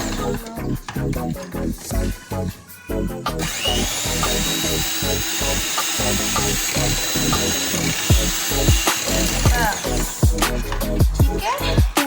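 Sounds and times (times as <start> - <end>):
electric hand mixer whining: 0.0 - 2.4, 3.4 - 12.0
background music: 0.0 - 12.0.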